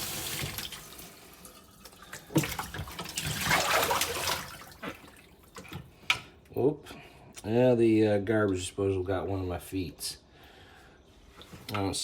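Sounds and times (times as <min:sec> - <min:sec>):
tap water running: 0:00.0 - 0:05.9.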